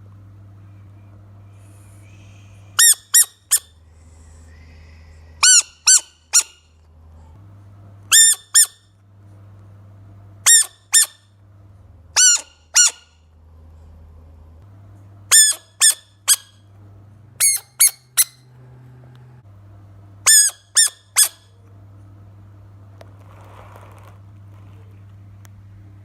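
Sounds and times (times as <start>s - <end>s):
steady low hum: 0.0s - 26.0s
frog squeaking: 2.8s - 3.7s, 5.4s - 6.6s, 8.1s - 8.8s, 10.5s - 11.2s, 12.2s - 13.1s, 15.3s - 16.6s, 17.4s - 18.4s, 20.3s - 21.4s.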